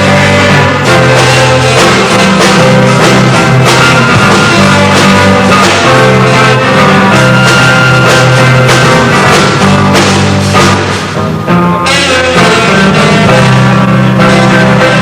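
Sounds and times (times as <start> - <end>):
steady drum beat: 0.0 - 11.7
electric guitar: 0.0 - 15.0.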